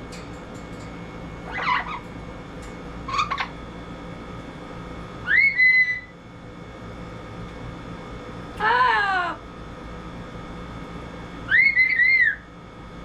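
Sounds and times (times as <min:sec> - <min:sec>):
parrot calls: 0:01.4 - 0:02.1, 0:03.1 - 0:03.6, 0:05.2 - 0:06.1, 0:11.5 - 0:12.4
parrot whistle rising: 0:01.5 - 0:02.0, 0:05.2 - 0:06.1, 0:11.5 - 0:12.5.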